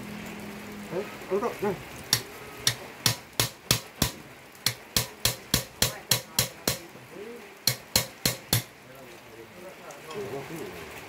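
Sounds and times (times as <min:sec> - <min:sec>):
hammer striking metal: 0:02.1 - 0:06.8, 0:07.7 - 0:08.7.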